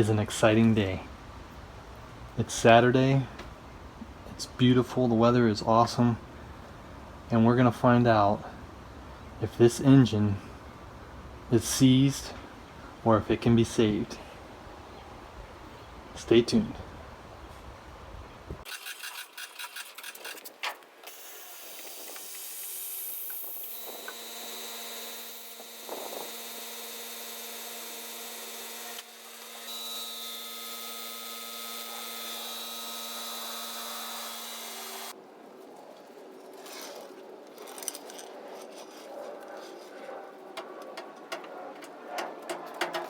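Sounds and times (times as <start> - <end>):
small motor whining: 21.1 - 35.1.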